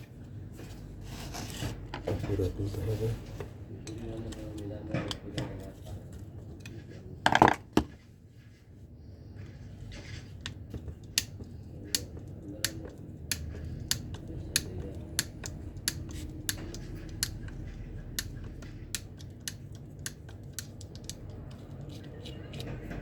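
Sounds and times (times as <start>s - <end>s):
hand tools clicking and tapping: 3.8s - 5.8s, 10.2s - 23.0s.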